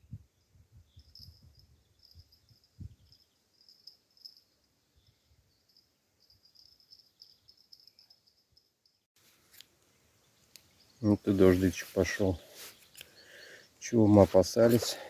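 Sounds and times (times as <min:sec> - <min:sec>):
crickets chirping: 0:01.0 - 0:09.0.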